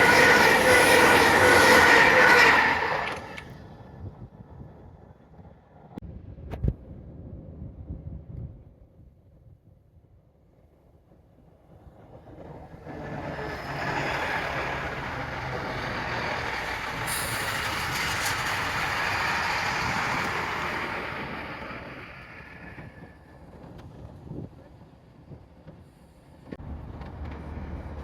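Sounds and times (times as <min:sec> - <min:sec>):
sharp clicks of train: 0:00.0 - 0:03.7, 0:12.1 - 0:24.4
train rumbling past: 0:00.0 - 0:03.9, 0:11.7 - 0:28.0.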